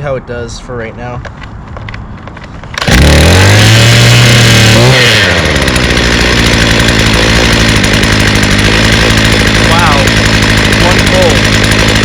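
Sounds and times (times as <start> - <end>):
string trimmer engine running: 2.7 - 12.0.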